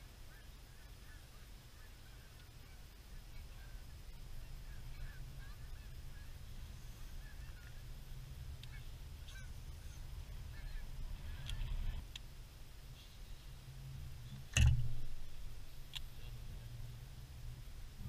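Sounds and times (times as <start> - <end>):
steady low rumble: 0.0 - 18.0
faint bird calls: 0.3 - 12.0.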